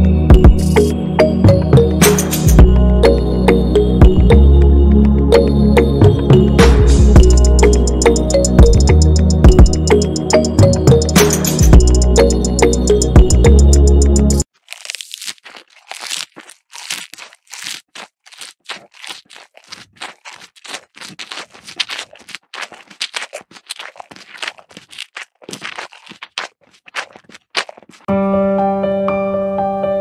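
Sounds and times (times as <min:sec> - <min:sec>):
cattle chewing grass: 0:07.2 - 0:13.2, 0:14.4 - 0:28.1.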